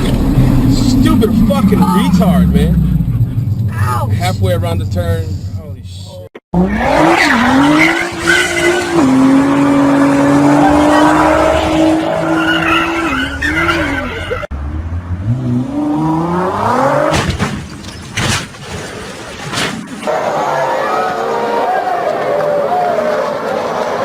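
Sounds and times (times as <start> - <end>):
car engine revving: 0.0 - 5.8, 6.6 - 17.4
tyres skidding: 0.0 - 20.6.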